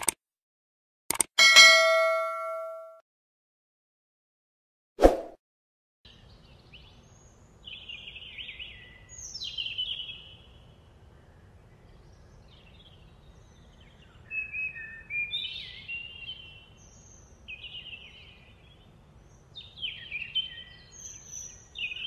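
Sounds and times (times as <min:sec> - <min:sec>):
birds singing: 0:06.1 - 0:22.0.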